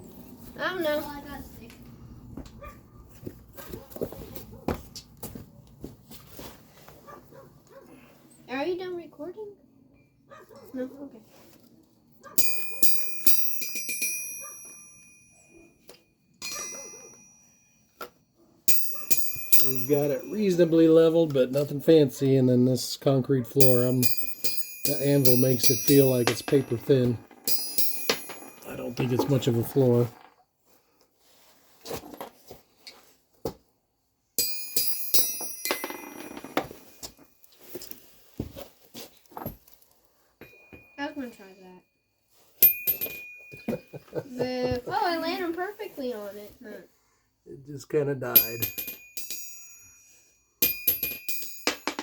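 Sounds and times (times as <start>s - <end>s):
ball bearing bouncing on anvil: 12.4s - 15.6s, 16.4s - 17.6s, 18.7s - 20.8s, 23.6s - 30.0s, 34.4s - 37.2s, 40.4s - 41.1s, 42.6s - 43.9s, 48.4s - 52.0s
anvil ringing high tone: 12.4s - 15.7s, 16.4s - 17.8s, 18.7s - 20.8s, 23.6s - 29.5s, 34.4s - 36.6s.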